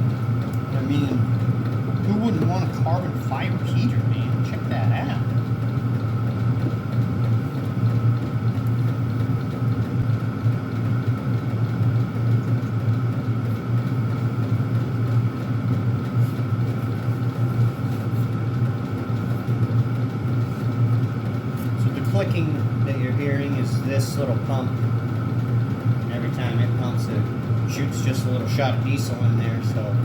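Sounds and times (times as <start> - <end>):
heater blower hum: 0.0 - 30.0.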